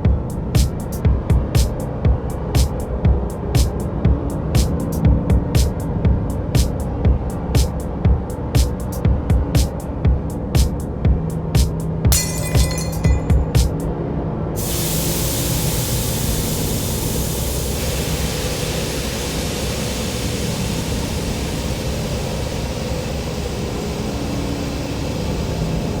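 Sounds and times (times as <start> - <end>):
loud steady hiss: 0.0 - 10.9, 14.6 - 26.0
sharp metallic clinks: 12.1 - 13.8.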